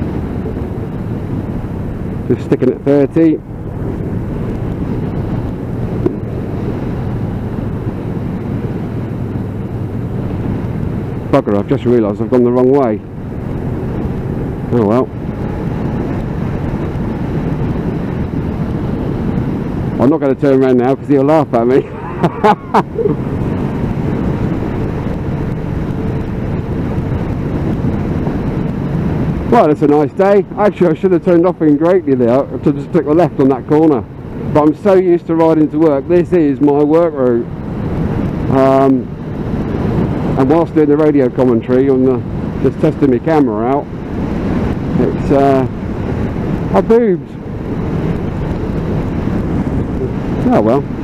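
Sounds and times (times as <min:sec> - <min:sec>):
wind rushing over helmet: 0:00.0 - 0:31.6, 0:32.4 - 0:51.0
muffled motorcycle engine: 0:00.0 - 0:51.0
motorcycle engine running: 0:03.0 - 0:11.8, 0:12.4 - 0:20.0.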